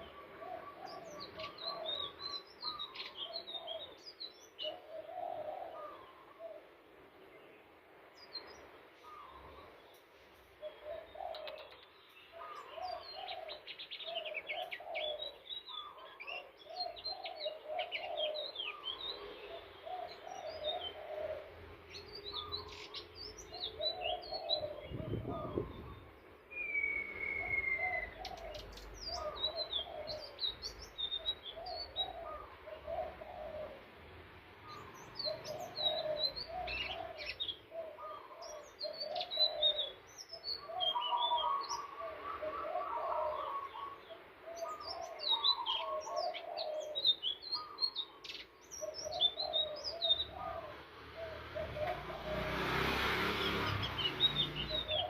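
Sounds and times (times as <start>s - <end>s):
bird chirping and trilling: 0.0s - 6.5s, 10.6s - 33.6s, 34.7s - 55.0s
lower warbled bird phrases: 0.0s - 7.6s, 8.2s - 10.0s, 10.6s - 52.6s, 53.4s - 55.0s
long falling bird whistle: 26.5s - 28.1s.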